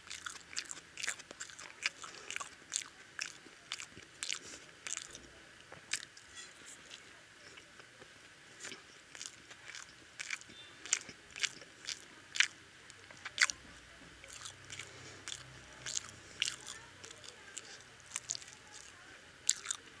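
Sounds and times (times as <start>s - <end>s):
close-up chewing: 0.0s - 20.0s
sharp mouth clicks: 8.6s - 13.6s, 14.2s - 18.9s.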